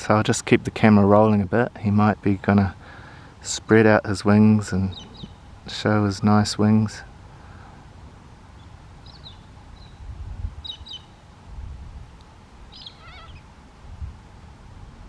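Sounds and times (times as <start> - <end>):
bird chirps: 4.8 - 5.6, 8.6 - 11.2, 12.7 - 13.5
bird warbling: 4.9 - 5.6, 10.6 - 11.2, 12.7 - 13.5
wind rumble on microphone: 7.9 - 15.0.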